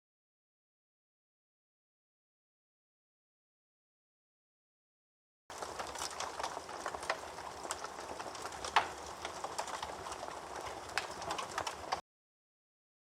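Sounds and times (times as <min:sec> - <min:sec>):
campfire crackling: 0:05.5 - 0:12.0.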